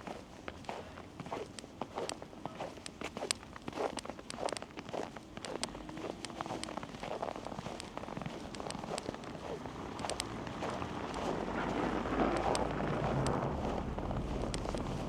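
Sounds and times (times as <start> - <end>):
footsteps crunching in snow: 0.0 - 15.0
street rumble: 5.1 - 15.0.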